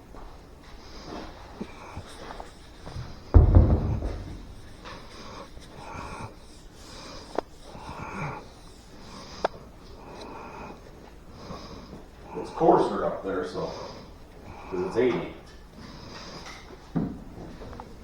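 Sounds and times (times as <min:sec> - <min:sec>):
heavy thump: 0:03.0 - 0:05.2.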